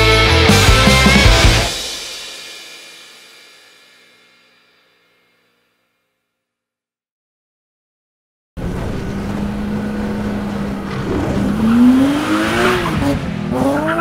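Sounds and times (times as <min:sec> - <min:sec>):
race car engine revving: 0:08.6 - 0:14.0.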